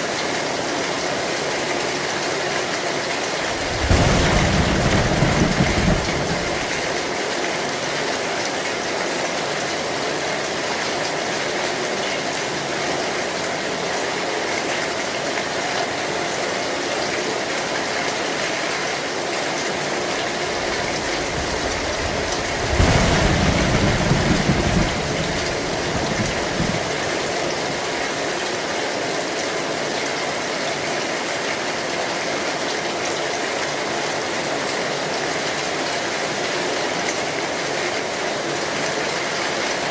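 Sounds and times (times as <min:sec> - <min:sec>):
heavy rain on a metal roof: 0:00.0 - 0:39.9
low thunder rumble: 0:03.4 - 0:07.2, 0:20.1 - 0:27.8.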